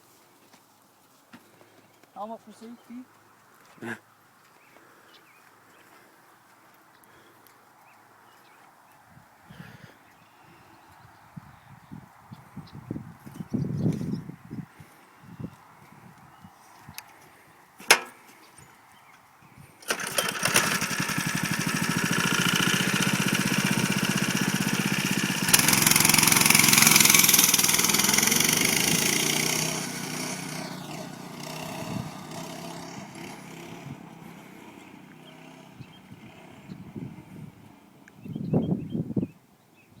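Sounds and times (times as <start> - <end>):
mini bike engine running: 19.8 - 38.0.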